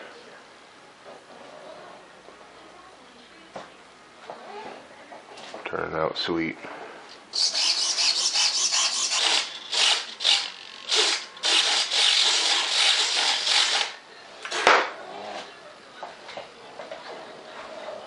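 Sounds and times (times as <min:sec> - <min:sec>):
hand filing scraping strokes: 0:07.4 - 0:13.9.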